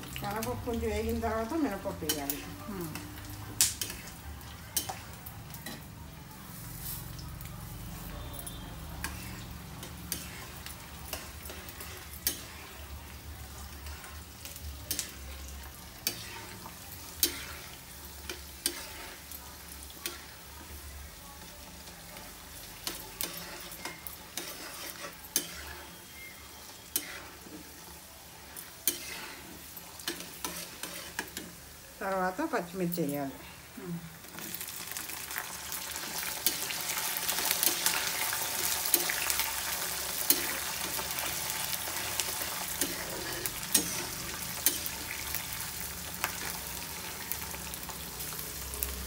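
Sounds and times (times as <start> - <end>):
nuts sizzling in hot oil: 0.0 - 49.0
metal spatula scraping a wok: 3.7 - 4.2, 8.2 - 13.0, 15.9 - 19.3, 22.8 - 31.6, 36.4 - 45.2.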